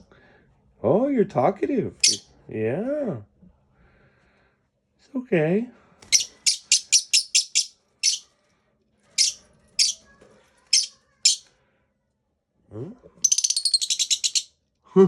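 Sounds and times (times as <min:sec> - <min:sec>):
bird chirping: 0:02.0 - 0:02.3, 0:06.1 - 0:08.3, 0:09.2 - 0:10.0, 0:10.8 - 0:11.4, 0:13.2 - 0:14.6.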